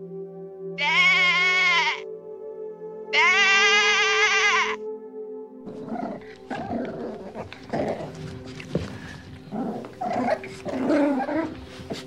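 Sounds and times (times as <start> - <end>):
background music: 0.0 - 12.0
animal bleating: 0.8 - 2.1, 3.1 - 4.8
big cat growling: 5.7 - 12.0.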